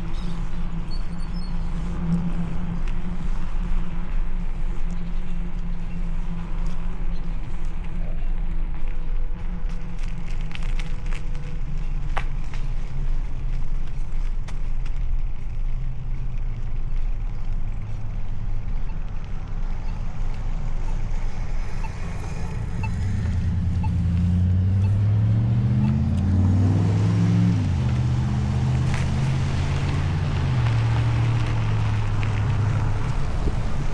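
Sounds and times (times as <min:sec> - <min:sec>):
wind and road noise: 0:00.0 - 0:33.9
vehicle engine passing: 0:19.4 - 0:33.9.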